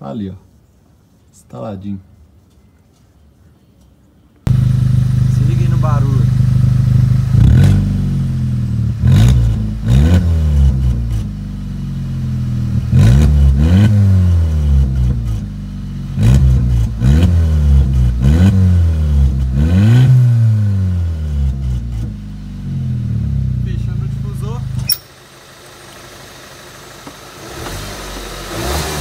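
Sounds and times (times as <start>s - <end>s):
car engine revving: 4.5s - 29.0s.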